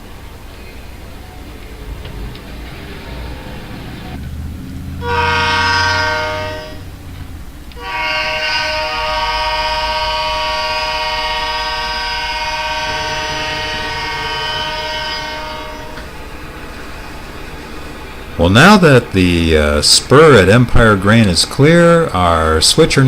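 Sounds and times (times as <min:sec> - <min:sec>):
low engine rumble: 0:00.0 - 0:23.0
locomotive air horn: 0:05.0 - 0:07.0, 0:07.8 - 0:16.1.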